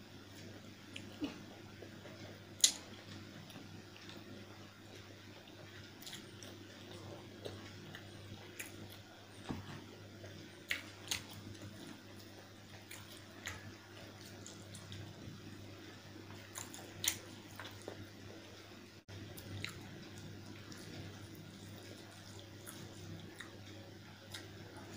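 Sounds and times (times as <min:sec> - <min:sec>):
steady low hum: 0:00.0 - 0:24.9
wet chewing and lip smacks: 0:16.5 - 0:18.0, 0:19.4 - 0:24.9.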